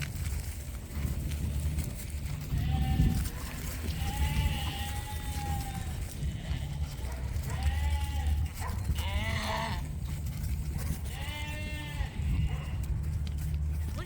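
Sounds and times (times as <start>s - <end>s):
lambs bleating: 1.0s - 10.1s, 10.9s - 13.0s.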